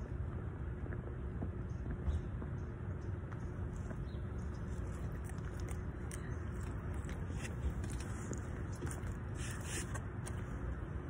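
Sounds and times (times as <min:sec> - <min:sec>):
steady low rumble: 0:00.0 - 0:11.0
close-up chewing and biting: 0:03.7 - 0:10.7
wet mouth clicks: 0:04.5 - 0:10.4
plastic fork scraping foam container: 0:07.2 - 0:10.4.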